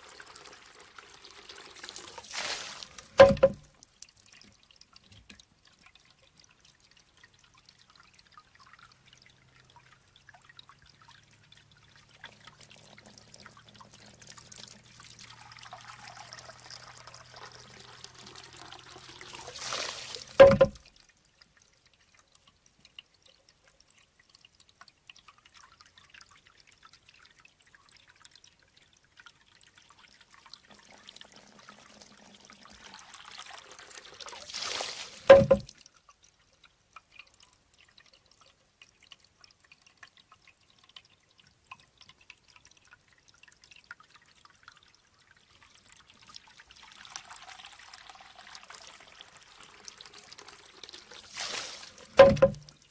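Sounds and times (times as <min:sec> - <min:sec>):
water pouring out: 0:00.0 - 0:36.4, 0:37.0 - 0:52.9
water dripping: 0:00.0 - 0:52.9
water trickling: 0:00.0 - 0:52.9
bamboo tube hollow clack: 0:02.9 - 0:03.7, 0:20.2 - 0:20.8, 0:35.2 - 0:35.7, 0:52.1 - 0:52.8.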